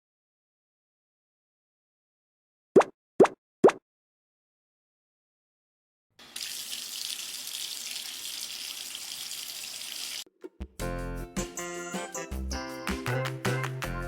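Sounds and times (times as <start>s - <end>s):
tap water running into sink: 6.2s - 10.3s
cheerful children's music: 10.4s - 14.0s.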